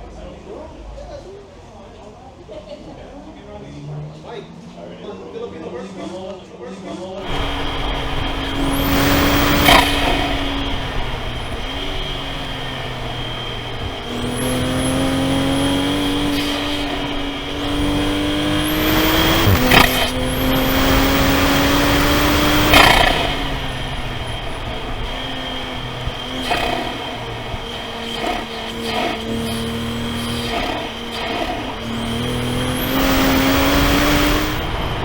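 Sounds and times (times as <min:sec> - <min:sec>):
car engine accelerating: 0:07.2 - 0:35.0.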